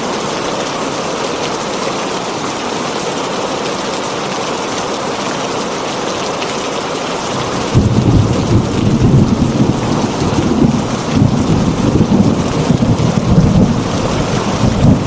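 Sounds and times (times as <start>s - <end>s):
heavy rain on a tin roof: 0.0s - 15.0s
thunder rumbling: 7.4s - 15.0s.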